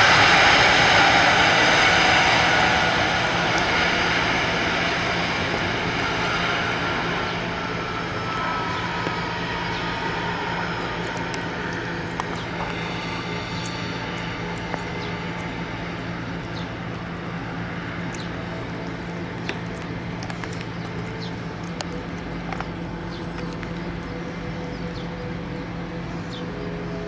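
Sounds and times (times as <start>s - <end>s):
jet engines humming: 0.0s - 27.0s
raindrops ticking: 18.1s - 23.9s.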